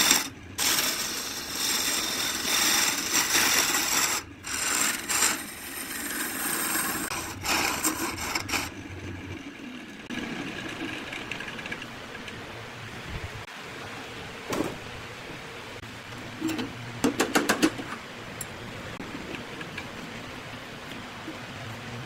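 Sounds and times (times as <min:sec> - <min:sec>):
lathe running: 0:00.0 - 0:08.7
turning tool scraping on lathe: 0:00.0 - 0:08.8.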